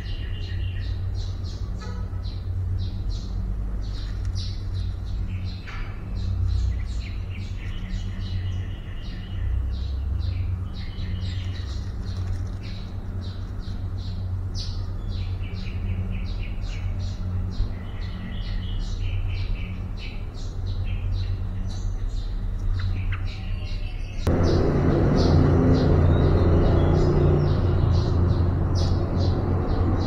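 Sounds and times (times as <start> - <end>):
birds chirping and trilling: 0.0 - 30.0
steady low hum: 24.2 - 30.0.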